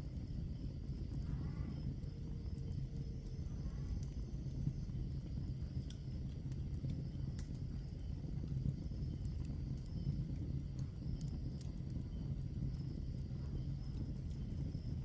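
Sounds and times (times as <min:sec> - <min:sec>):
low rumble of burning logs: 0:00.0 - 0:15.0
wood fire crackling: 0:00.0 - 0:15.0.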